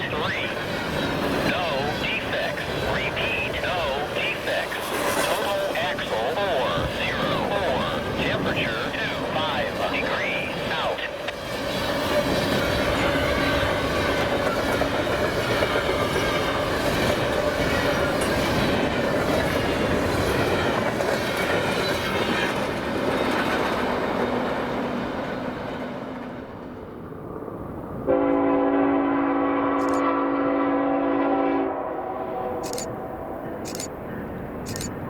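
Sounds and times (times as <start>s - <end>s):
locomotive air horn chord: 28.1s - 33.4s.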